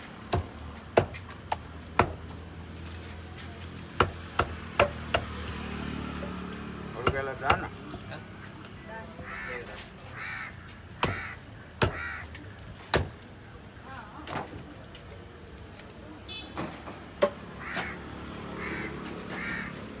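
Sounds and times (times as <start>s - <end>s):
crows cawing: 9.1s - 12.5s, 17.5s - 20.0s.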